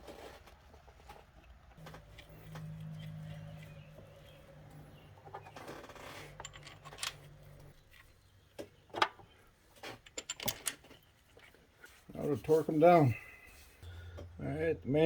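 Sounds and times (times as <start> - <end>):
low steady hum: 1.8 - 8.5, 13.1 - 15.0.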